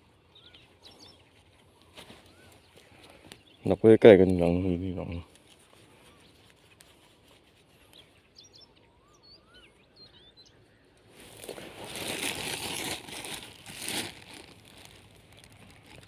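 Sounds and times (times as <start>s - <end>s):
faint birds chirping: 0.0s - 12.0s
dry vegetation crinkling rustle: 0.4s - 8.2s, 11.0s - 16.0s.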